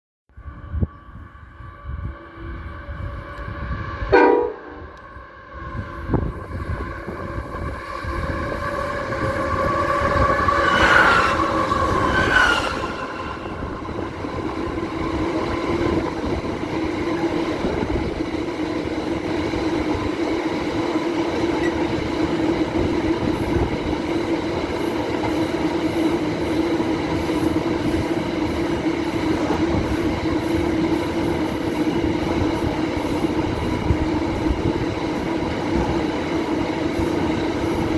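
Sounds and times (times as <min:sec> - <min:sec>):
wheel whine: 0:00.4 - 0:37.9
train horn blare: 0:00.7 - 0:15.3
train wagons rumbling: 0:01.6 - 0:37.9.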